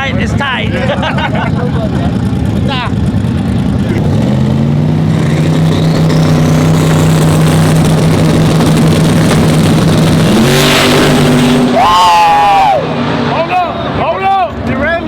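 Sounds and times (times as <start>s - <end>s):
racing truck engine running hard: 0.0s - 15.0s.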